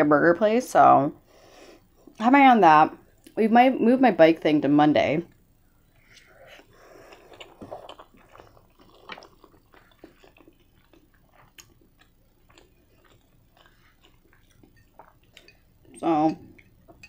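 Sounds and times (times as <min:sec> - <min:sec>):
wet mouth clicks and smacks chewing: 0:07.1 - 0:15.6.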